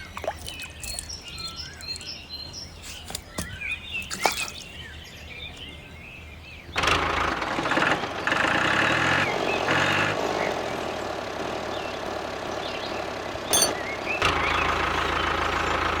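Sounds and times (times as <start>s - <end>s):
birds chirping: 0.0s - 6.8s, 11.7s - 15.9s
small engine running: 6.8s - 16.0s.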